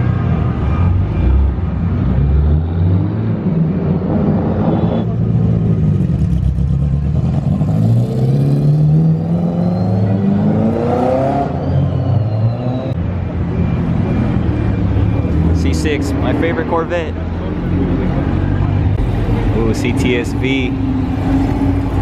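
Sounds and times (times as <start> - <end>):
car engine revving: 0.3 - 12.9, 17.2 - 22.0.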